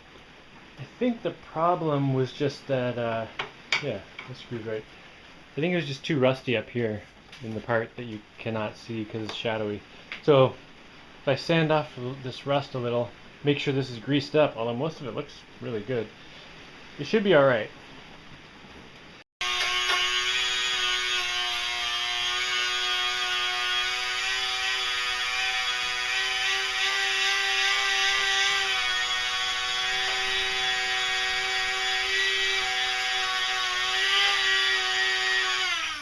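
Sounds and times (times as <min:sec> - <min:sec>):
power tool wire brush whine: 0:19.4 - 0:36.0.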